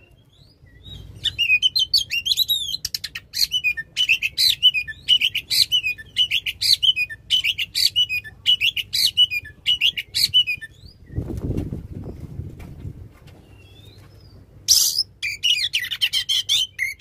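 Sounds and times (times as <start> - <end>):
bird singing whistled phrases: 0.0 - 11.2, 14.7 - 17.0.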